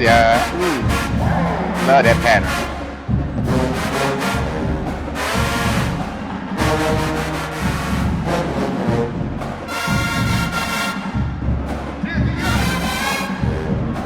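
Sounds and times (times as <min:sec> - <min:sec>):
brass sustained chords: 0:00.0 - 0:11.5, 0:12.4 - 0:14.0
heavy low drums: 0:00.0 - 0:14.0.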